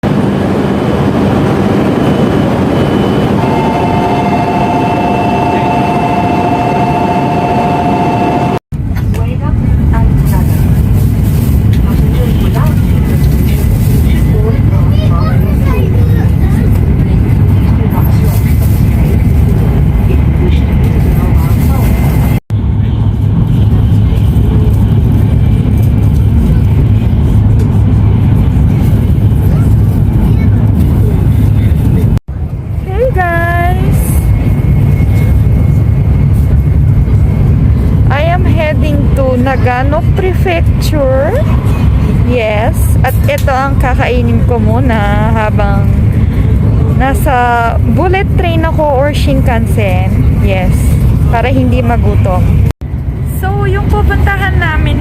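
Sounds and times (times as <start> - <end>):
steady high whine: 0.0 - 55.0
train rumbling: 0.0 - 55.0.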